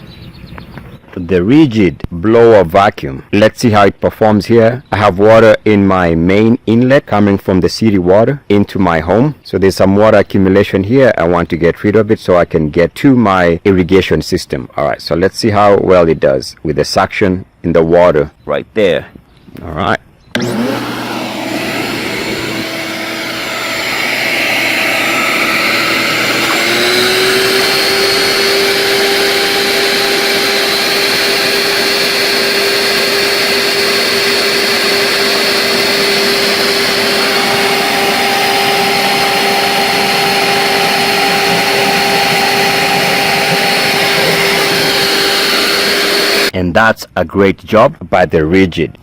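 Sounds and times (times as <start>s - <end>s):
shop vacuum sucking up water: 20.4s - 46.5s.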